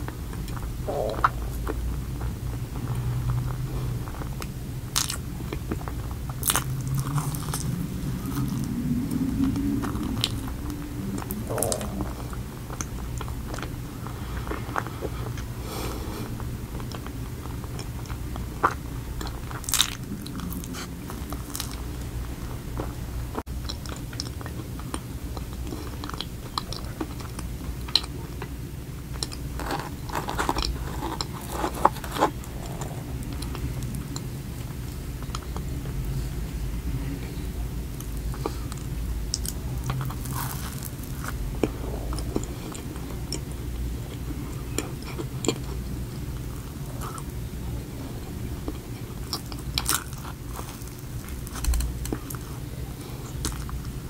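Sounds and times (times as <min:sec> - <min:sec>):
steady low hum: 0:00.0 - 0:54.0
person chewing and biting: 0:04.9 - 0:08.7, 0:17.7 - 0:22.1, 0:29.1 - 0:34.2, 0:38.2 - 0:43.5, 0:48.7 - 0:52.6.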